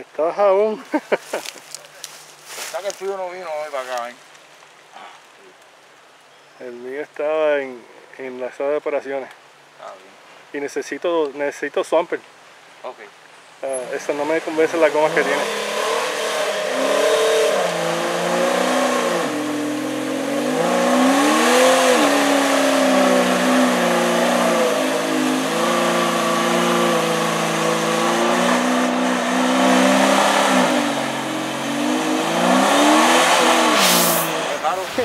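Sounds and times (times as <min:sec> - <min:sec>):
off-road engine revving under load: 0:14.0 - 0:34.8.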